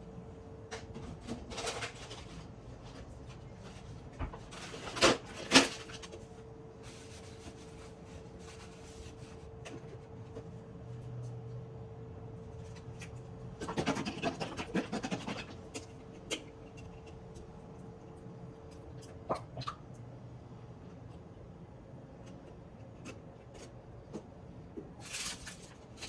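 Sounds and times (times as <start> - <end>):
kitchen clattering and scraping: 1.0 - 6.2.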